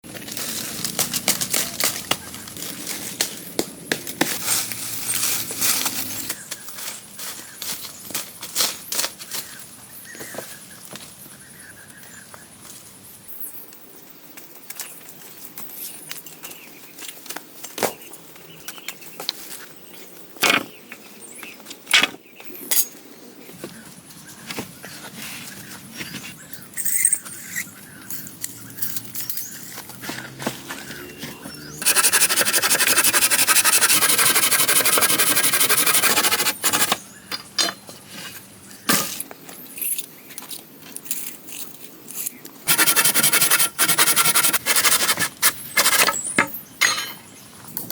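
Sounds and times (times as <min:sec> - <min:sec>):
rustling and crackling: 0:00.1 - 0:09.2.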